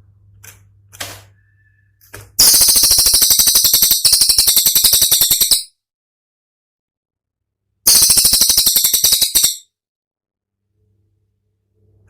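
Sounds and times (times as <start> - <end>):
bird singing sharp repeated notes: 2.4 - 5.7, 7.9 - 9.7.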